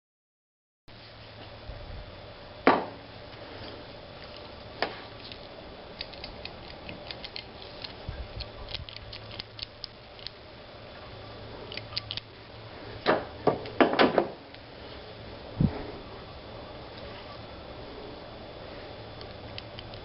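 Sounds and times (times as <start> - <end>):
louder knocks: 2.7 - 3.0.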